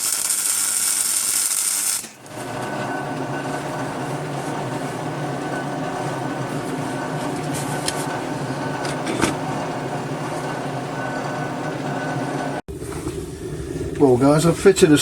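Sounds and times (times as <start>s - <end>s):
propane torch flame rushing: 12.7s - 15.0s.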